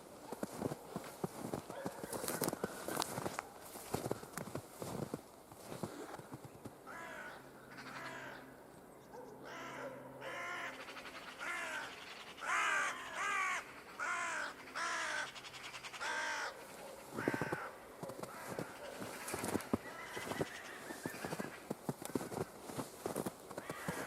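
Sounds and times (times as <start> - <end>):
footsteps crunching in snow: 0.0 - 6.7, 16.7 - 24.0
crow cawing: 6.8 - 8.6, 9.4 - 24.0.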